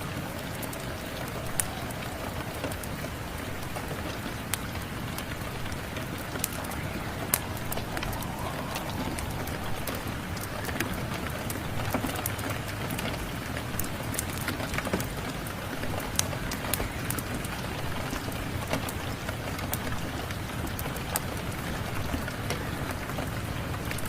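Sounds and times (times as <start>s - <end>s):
steady rain falling: 0.0s - 24.0s
wood fire crackling: 0.0s - 24.0s.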